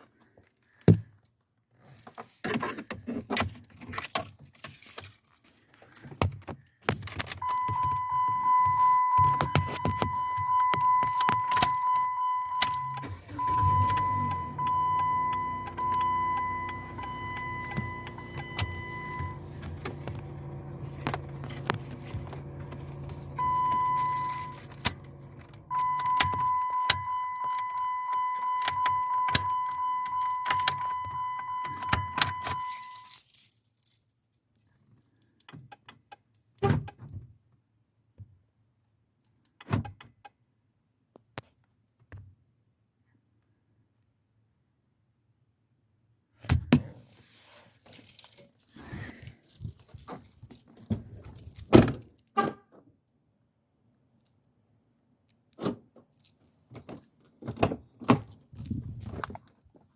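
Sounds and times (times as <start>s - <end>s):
high car warning tone: 7.4s - 33.2s.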